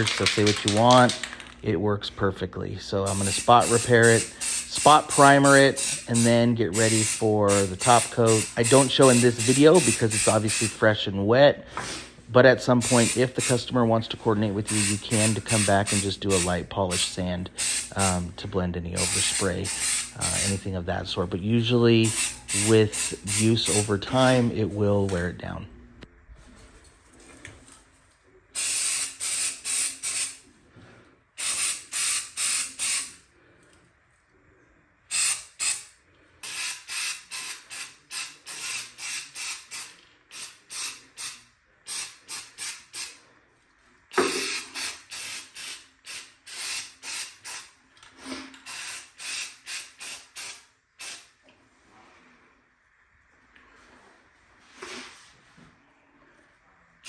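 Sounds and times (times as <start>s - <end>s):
aerosol can spraying: 3.1s - 10.8s, 12.8s - 13.6s, 14.7s - 18.2s, 19.0s - 20.6s, 22.0s - 23.9s, 35.1s - 43.2s, 44.2s - 47.7s, 48.7s - 51.3s.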